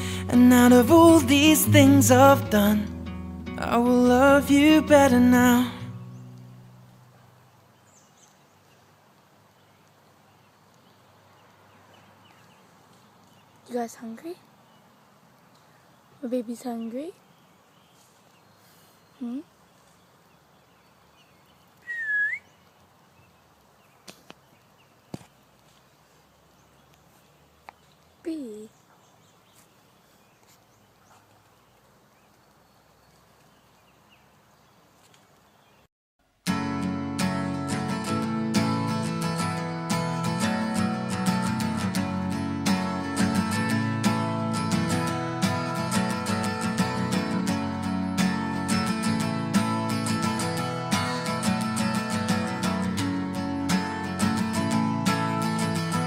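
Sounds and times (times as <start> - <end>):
outdoor background hiss: 0.0 - 56.0
faint bird chirps: 15.6 - 25.0, 26.6 - 35.9.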